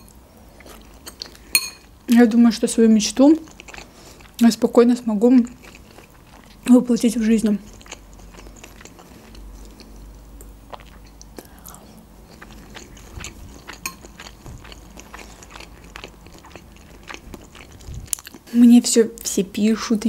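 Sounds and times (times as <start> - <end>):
person chewing food: 0.0 - 2.0, 3.3 - 4.4, 5.4 - 6.7, 7.4 - 18.5
low steady hum: 0.0 - 20.0.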